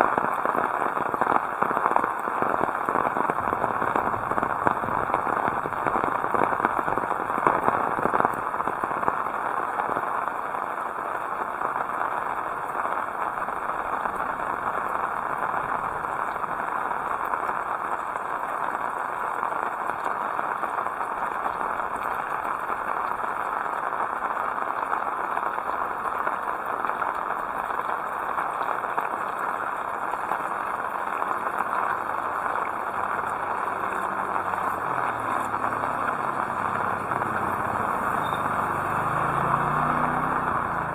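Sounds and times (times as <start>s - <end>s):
heavy rain falling: 0.0s - 40.9s
vehicle engine hum: 32.0s - 40.9s.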